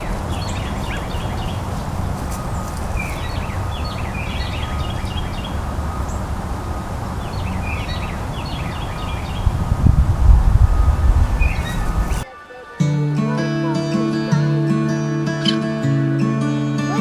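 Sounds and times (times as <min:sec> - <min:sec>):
small birds chirping: 0:00.0 - 0:12.2
steady low rumble: 0:00.8 - 0:12.2.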